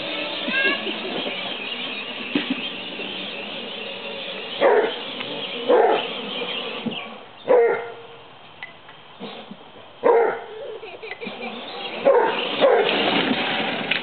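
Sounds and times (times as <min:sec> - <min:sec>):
steady background noise: 0:00.0 - 0:14.0
dog barking: 0:04.6 - 0:05.0, 0:05.7 - 0:06.1, 0:07.5 - 0:08.0, 0:10.0 - 0:10.6, 0:12.0 - 0:13.0.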